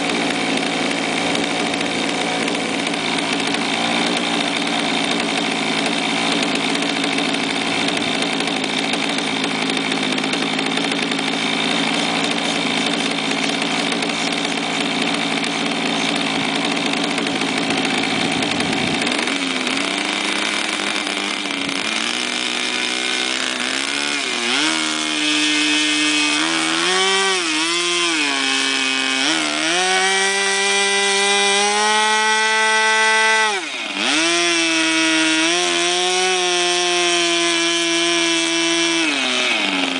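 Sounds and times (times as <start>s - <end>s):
model airplane engine droning: 0.0s - 30.0s.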